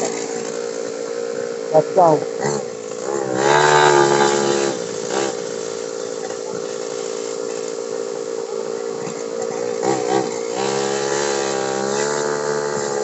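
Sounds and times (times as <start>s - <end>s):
motorcycle engine pulling away: 2.4s - 8.0s, 8.6s - 13.0s.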